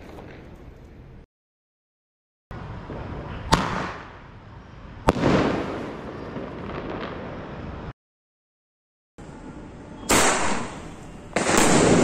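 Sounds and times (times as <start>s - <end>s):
fireworks bangs: 0.0s - 1.0s, 2.6s - 7.9s, 10.0s - 12.0s
hiss of fireworks: 10.1s - 12.0s.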